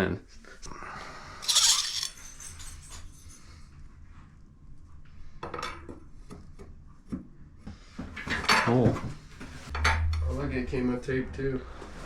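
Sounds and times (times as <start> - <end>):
metallic clinks of plumbing parts: 1.4 - 3.2.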